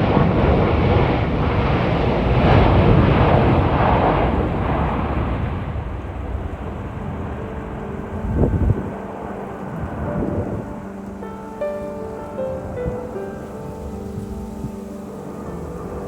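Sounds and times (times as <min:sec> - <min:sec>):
jet engines rumbling: 0:00.0 - 0:16.0
wind buffeting microphone: 0:00.0 - 0:16.0
music: 0:04.6 - 0:16.0.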